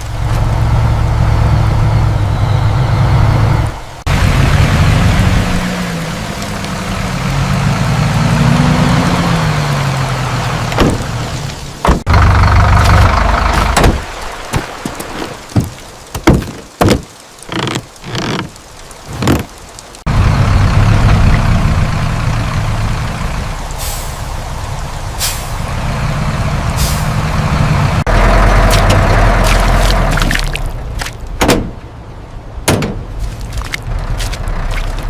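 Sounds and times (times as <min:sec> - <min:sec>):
tractor engine running: 0:10.4 - 0:14.3, 0:25.9 - 0:31.9.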